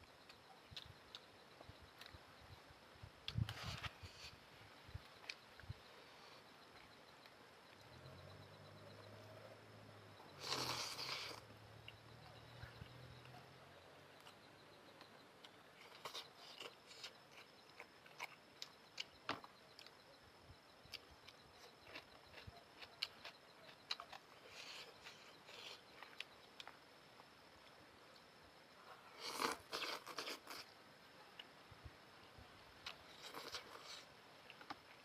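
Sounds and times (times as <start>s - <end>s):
chewing noodles: 15.8s - 19.9s, 20.9s - 26.8s, 29.1s - 30.7s, 32.8s - 34.8s.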